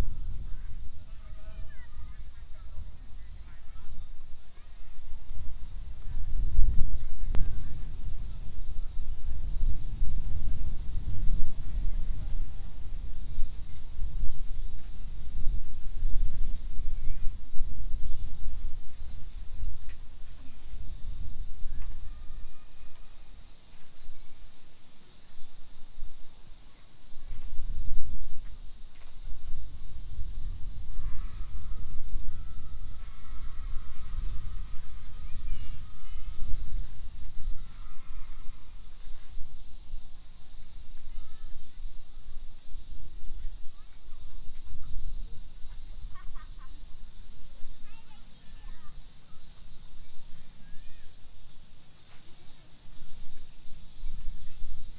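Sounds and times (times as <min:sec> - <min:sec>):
wind gusting on microphone: 0:00.0 - 0:52.0
high insect drone: 0:00.0 - 0:54.9
steady high hiss: 0:00.0 - 0:54.9
faint bird calls: 0:30.7 - 0:39.3.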